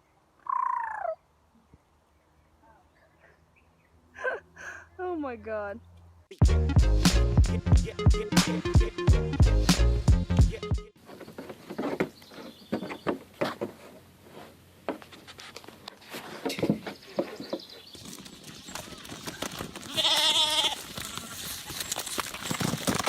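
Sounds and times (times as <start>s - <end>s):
farm animal bleat: 19.8s - 21.4s.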